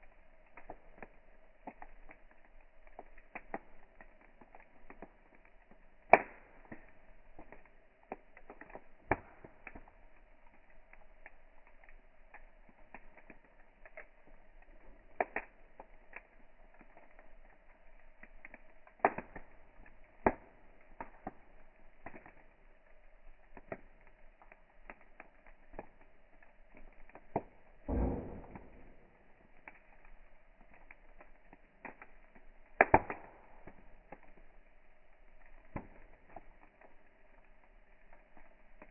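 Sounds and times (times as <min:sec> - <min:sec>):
wood campfire crackling: 0:00.0 - 0:38.9
low rumbling burst: 0:27.8 - 0:29.5.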